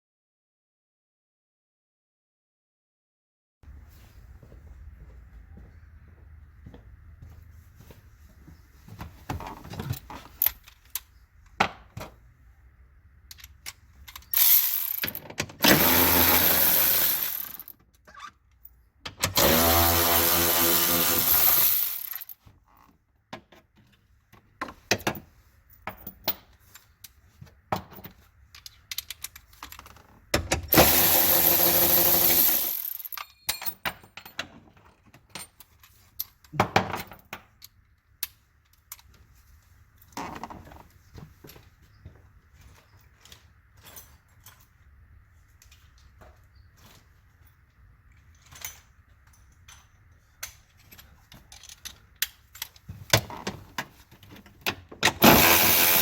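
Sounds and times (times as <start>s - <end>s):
tools and hardware clanking: 13.3s - 24.0s, 24.6s - 39.3s, 40.0s - 44.9s, 45.6s - 56.0s
small power tool whining: 15.6s - 17.7s, 19.4s - 22.3s, 30.7s - 33.0s, 55.2s - 56.0s.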